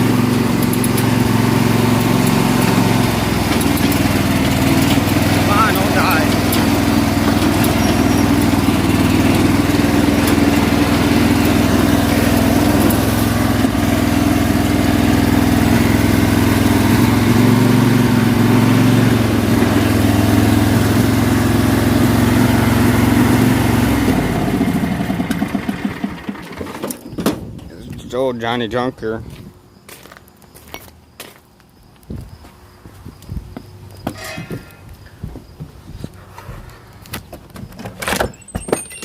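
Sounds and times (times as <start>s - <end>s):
lawn mower engine running: 0.0s - 28.6s.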